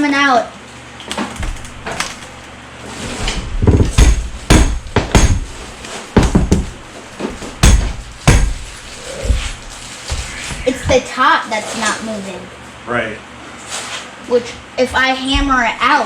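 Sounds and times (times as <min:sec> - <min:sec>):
hammer blows: 0:03.8 - 0:11.1.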